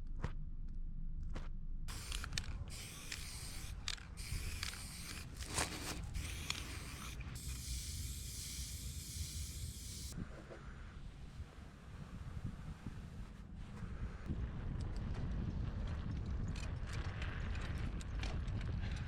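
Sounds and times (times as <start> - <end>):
sharp mechanical clicks and rattles: 1.3 - 10.2
steady high hiss: 1.9 - 10.2.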